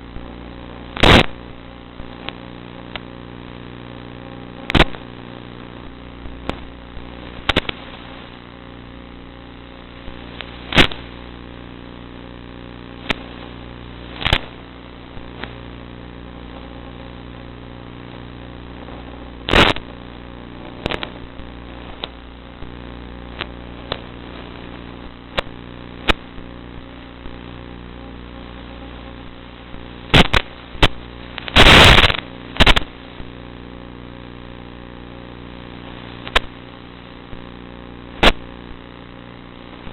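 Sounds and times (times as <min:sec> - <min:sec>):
sharp pops: 0:01.0 - 0:01.5, 0:04.7 - 0:05.0, 0:05.8 - 0:07.9, 0:10.1 - 0:11.1, 0:13.0 - 0:13.4, 0:14.1 - 0:14.6, 0:19.5 - 0:19.9, 0:20.8 - 0:22.7, 0:29.7 - 0:32.9, 0:36.2 - 0:36.6, 0:38.2 - 0:38.6.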